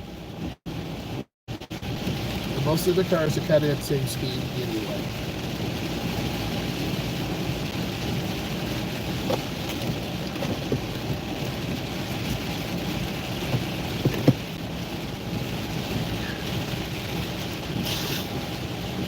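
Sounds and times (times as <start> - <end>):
heavy rain on a car: 0.0 - 19.0
road and engine noise: 0.0 - 19.0.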